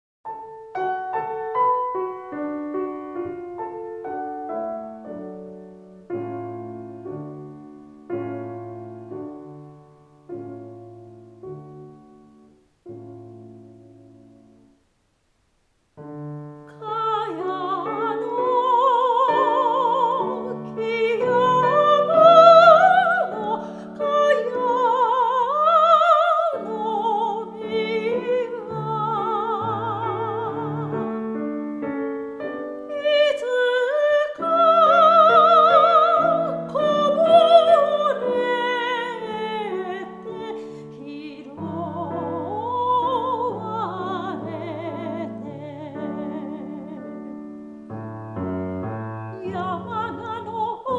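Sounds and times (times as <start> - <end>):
piano accompaniment: 0.3 - 14.9, 16.0 - 50.9
soprano singing: 16.0 - 50.9.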